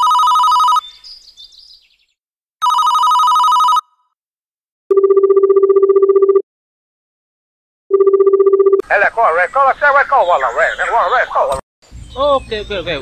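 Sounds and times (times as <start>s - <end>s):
warbling telephone ring: 0.0s - 0.8s, 2.6s - 3.8s.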